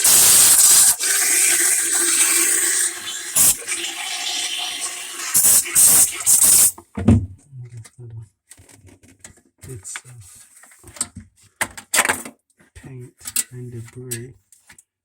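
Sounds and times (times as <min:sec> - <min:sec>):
loud hissing bursts: 0:00.0 - 0:03.8, 0:05.2 - 0:06.7
water gurgling through a drain: 0:00.0 - 0:06.7.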